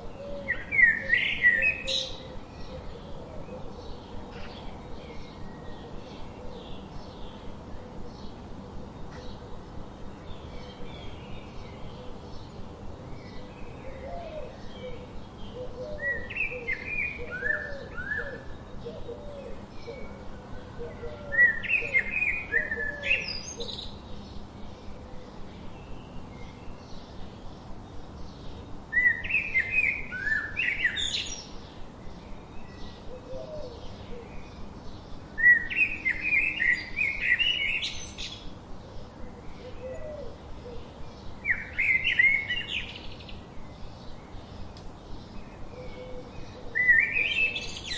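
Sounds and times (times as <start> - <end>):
songbird chirping and whistling: 16.0 - 18.5, 28.9 - 31.4, 35.4 - 38.4, 45.9 - 47.9
faint lower bird calls: 32.2 - 47.9.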